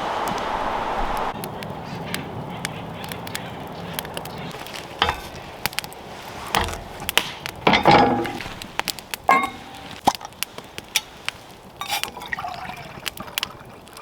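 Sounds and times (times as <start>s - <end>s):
knocks and clatters: 5.0s - 10.4s.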